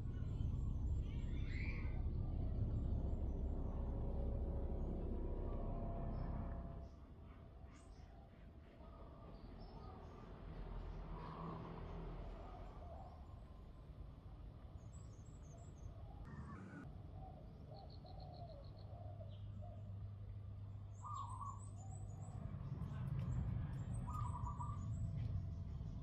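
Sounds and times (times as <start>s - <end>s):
low hum: 0.0s - 7.4s, 16.3s - 17.0s
birds chirping: 23.3s - 26.0s.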